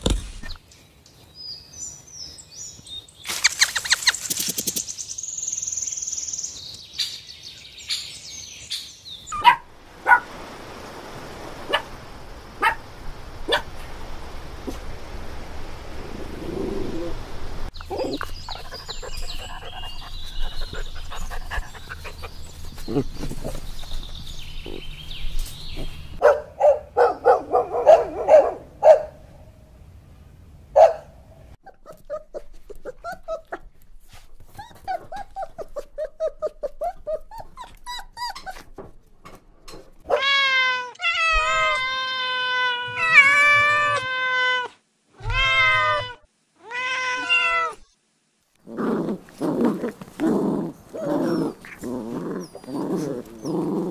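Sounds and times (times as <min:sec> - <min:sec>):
dog barking: 0:09.3 - 0:10.3, 0:12.6 - 0:12.8, 0:13.5 - 0:13.7, 0:26.2 - 0:29.2, 0:30.8 - 0:31.2
small dog growling: 0:16.2 - 0:17.2, 0:17.8 - 0:23.7, 0:48.6 - 0:53.9.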